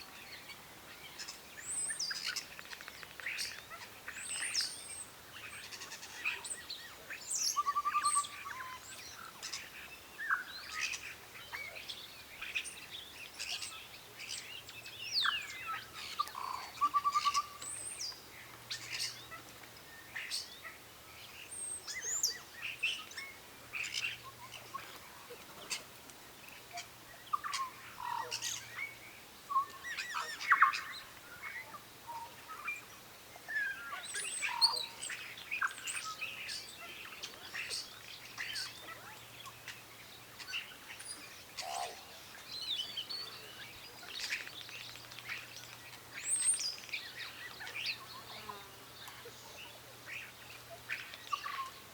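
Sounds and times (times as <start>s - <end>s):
birds chirping and singing: 33.5s - 51.9s.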